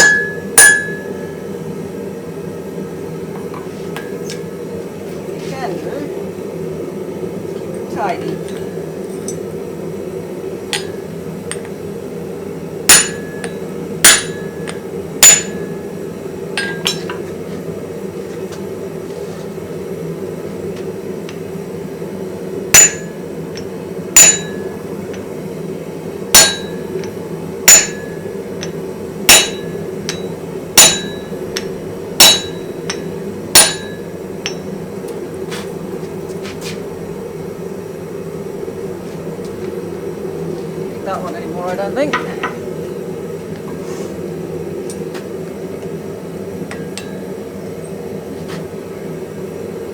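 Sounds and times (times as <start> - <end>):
hammer striking steel on anvil: 0.0 - 1.4, 8.3 - 9.5, 10.7 - 11.8, 12.9 - 15.9, 16.6 - 17.3, 22.7 - 25.2, 26.3 - 34.8, 42.1 - 42.7, 46.7 - 47.4
steady low hum: 0.0 - 49.9.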